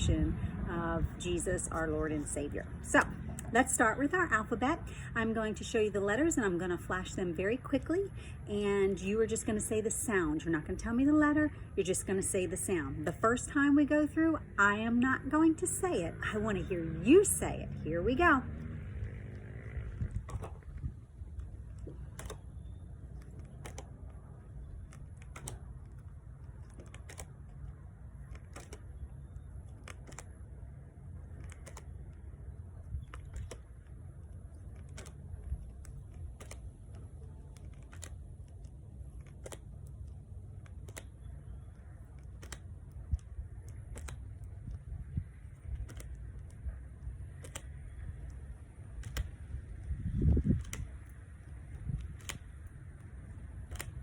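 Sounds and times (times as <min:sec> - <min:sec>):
low rumble: 0:00.0 - 0:07.5, 0:11.5 - 0:37.6
flashcards flipping clicks: 0:16.5 - 0:54.0.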